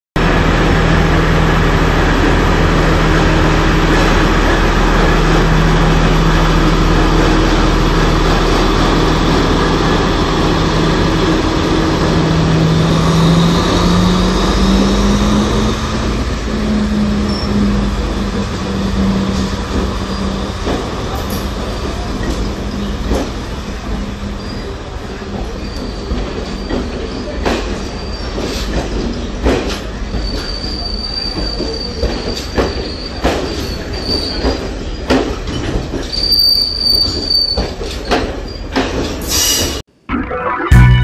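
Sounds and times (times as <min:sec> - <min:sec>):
train engine humming: 0:00.2 - 0:25.6.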